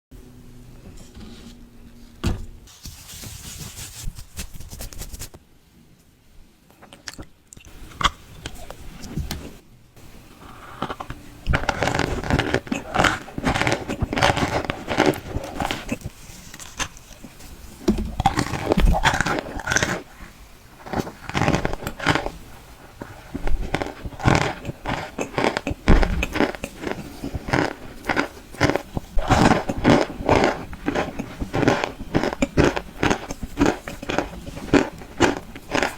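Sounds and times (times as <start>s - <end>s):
squeaky crunching of cornstarch chunks: 10.0s - 35.9s.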